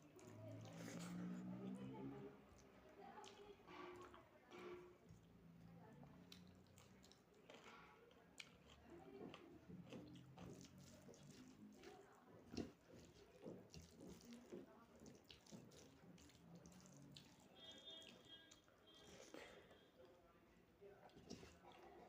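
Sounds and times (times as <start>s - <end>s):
wet chewing and mouth smacks: 6.1s - 20.2s, 21.0s - 22.0s.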